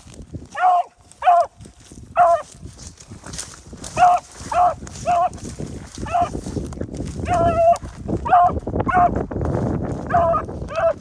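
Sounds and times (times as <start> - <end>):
wind noise on microphone: 0.0 - 11.0
dog barking: 0.5 - 1.5, 2.2 - 2.5, 8.2 - 9.1, 10.1 - 11.0.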